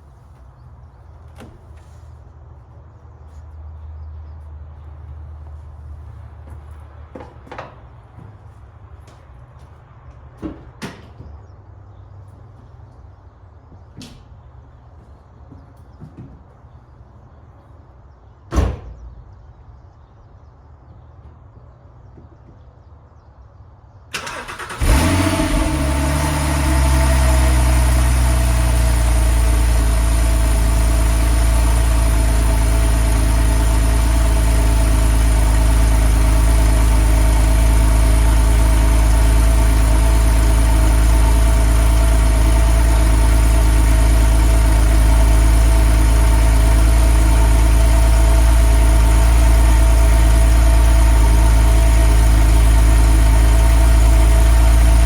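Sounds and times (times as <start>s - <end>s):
car engine idling: 24.2s - 55.0s.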